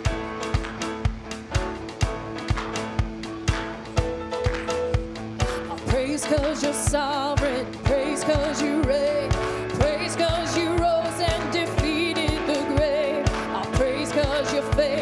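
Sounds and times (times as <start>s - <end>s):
band playing: 0.0s - 15.0s
steady drum beat: 0.0s - 15.0s
person singing worship song: 5.6s - 15.0s.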